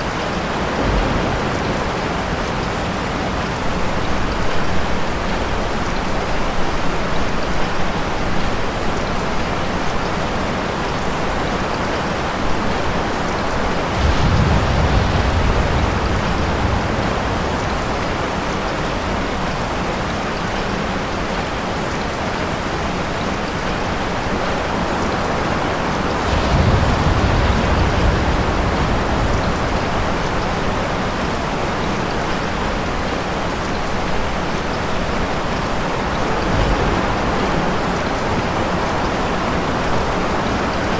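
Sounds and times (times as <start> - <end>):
distant thunder rumbles: 0.0 - 5.5, 12.5 - 19.8, 24.8 - 32.8, 35.5 - 40.8
steady rain falling: 0.0 - 40.9.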